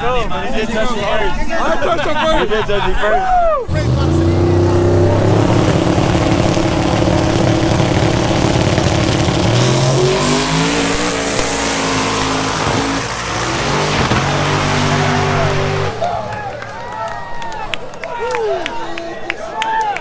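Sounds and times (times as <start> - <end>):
vehicle engine running: 3.7 - 17.0.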